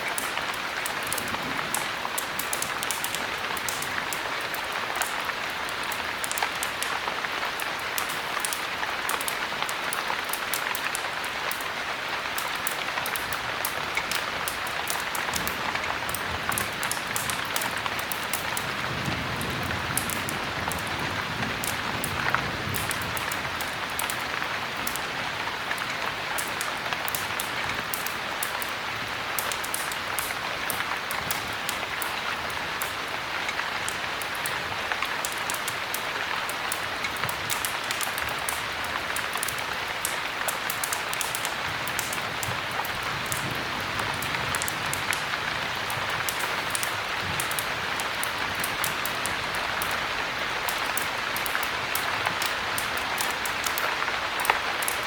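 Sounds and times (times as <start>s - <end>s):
heavy rain falling: 0.0s - 55.0s
raindrop ticks: 0.0s - 55.0s.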